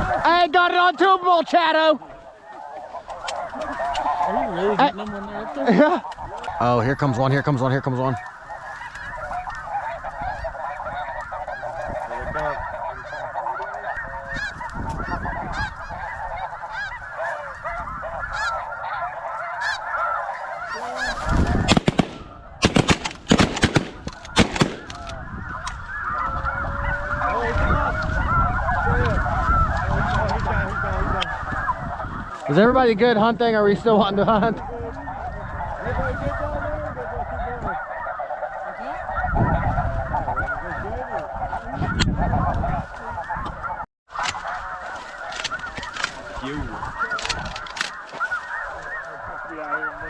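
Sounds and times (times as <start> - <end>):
geese honking: 0.0 - 50.0
shotgun shots: 21.6 - 25.1.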